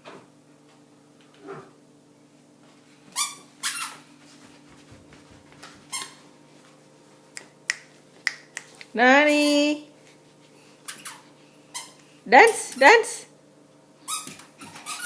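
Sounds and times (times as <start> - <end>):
sandals squeaking with steps: 3.2 - 4.1, 5.6 - 6.2, 10.8 - 12.0, 14.1 - 15.0.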